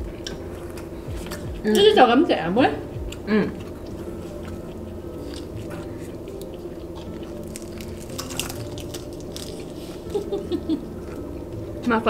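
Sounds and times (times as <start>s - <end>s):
wet chewing and mouth clicks: 3.0s - 10.2s.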